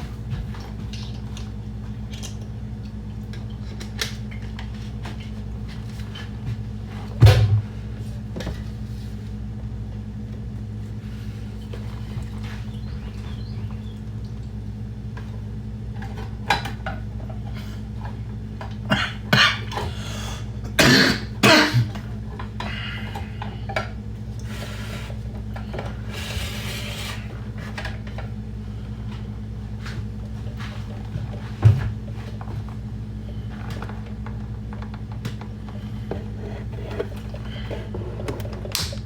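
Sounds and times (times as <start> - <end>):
steady low hum: 0.0 - 39.0
scraping and rustling: 35.7 - 38.7.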